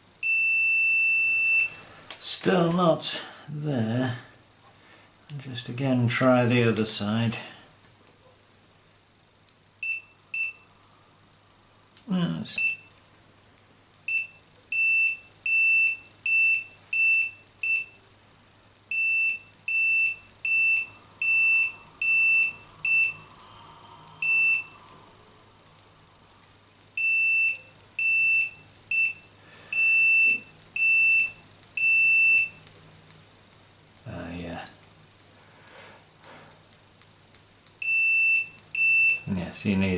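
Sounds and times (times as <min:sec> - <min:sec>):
multimeter continuity beeps: 0:00.1 - 0:01.8, 0:09.7 - 0:11.5, 0:12.6 - 0:18.0, 0:18.8 - 0:23.5, 0:24.1 - 0:25.0, 0:25.7 - 0:32.8, 0:37.7 - 0:39.3.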